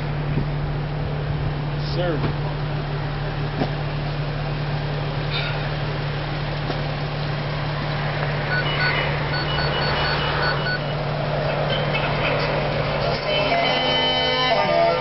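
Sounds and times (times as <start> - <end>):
vehicle engine running: 0.0 - 15.0
short electronic beeps: 8.5 - 10.9.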